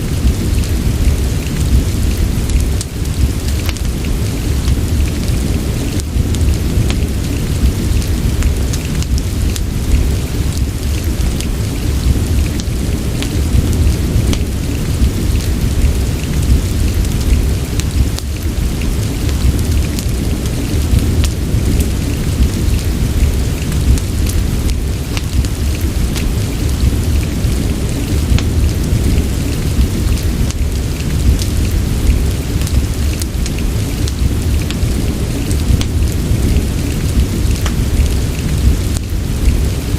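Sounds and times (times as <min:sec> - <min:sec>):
deep constant rumble: 0:00.0 - 0:39.9
fireplace crackling: 0:00.0 - 0:39.9
rain: 0:00.0 - 0:39.9.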